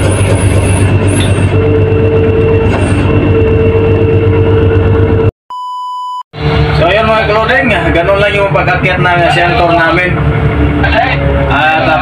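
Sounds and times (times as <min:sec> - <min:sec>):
boat engine droning: 0:06.4 - 0:12.0.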